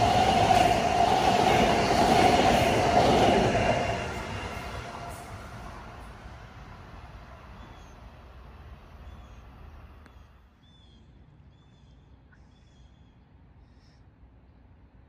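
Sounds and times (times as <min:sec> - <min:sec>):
train rumble: 0:00.0 - 0:10.1
bird chirping: 0:07.6 - 0:08.0, 0:09.0 - 0:14.0.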